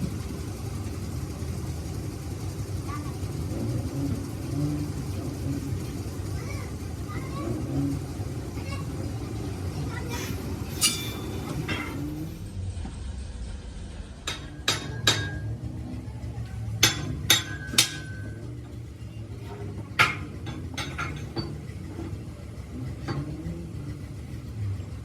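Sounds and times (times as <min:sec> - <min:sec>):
metal strikes on steel parts: 0:10.7 - 0:12.3, 0:14.3 - 0:15.8, 0:16.8 - 0:18.8, 0:19.4 - 0:22.1, 0:23.0 - 0:23.4.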